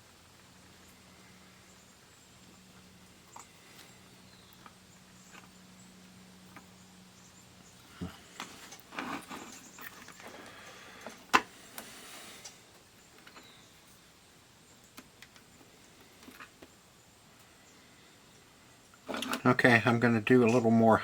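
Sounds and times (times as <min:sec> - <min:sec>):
plastic clicks and rustles: 0:19.0 - 0:19.5.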